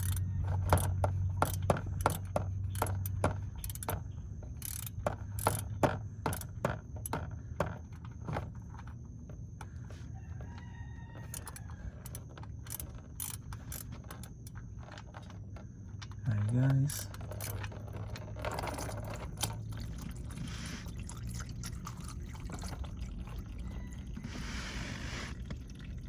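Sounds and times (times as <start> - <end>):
ratchet wrench clicking: 0.0 - 4.0, 4.6 - 7.2, 11.3 - 14.6, 16.9 - 17.7.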